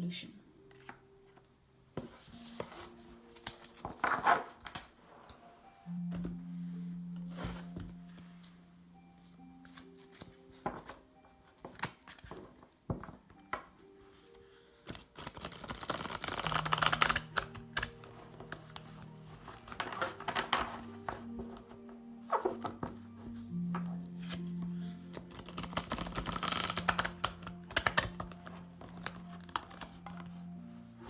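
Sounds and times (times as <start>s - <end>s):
soft background music: 0.0s - 31.0s
cards shuffling: 9.6s - 13.6s, 14.8s - 21.7s, 23.7s - 30.4s
cards tapping and clicking: 9.7s - 13.7s, 14.9s - 19.0s, 25.1s - 30.3s.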